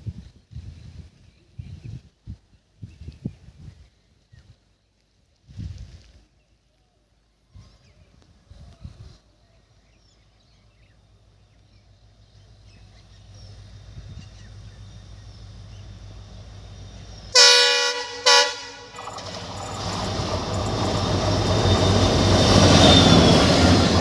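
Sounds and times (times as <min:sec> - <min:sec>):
train rumble: 0:10.3 - 0:24.0
locomotive horn blast: 0:17.3 - 0:19.2.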